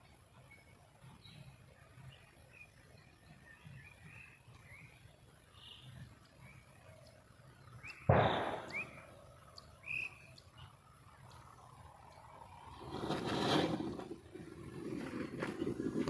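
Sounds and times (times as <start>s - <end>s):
birds chirping faintly: 0.0s - 12.8s
firecracker bang: 8.1s - 9.0s.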